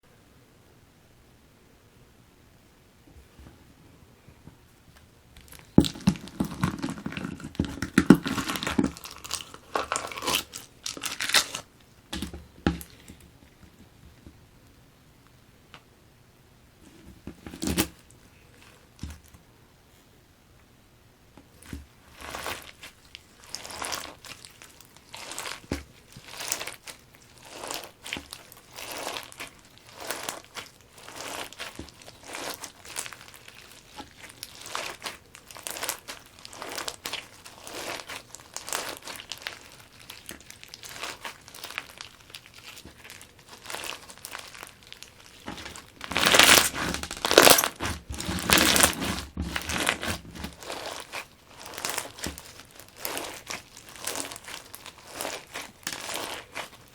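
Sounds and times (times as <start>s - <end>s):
crunchy slime being squeezed: 5.4s - 13.0s, 21.5s - 56.9s.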